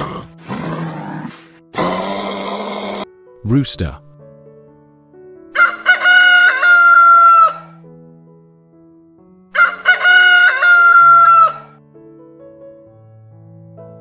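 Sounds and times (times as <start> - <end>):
rooster crowing: 5.6 - 7.8, 9.6 - 11.8.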